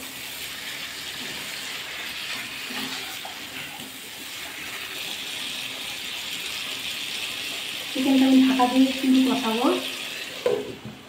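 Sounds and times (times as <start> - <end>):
spatula stirring in a pan: 0.0 - 6.6
chicken sizzling in oil: 0.0 - 10.9.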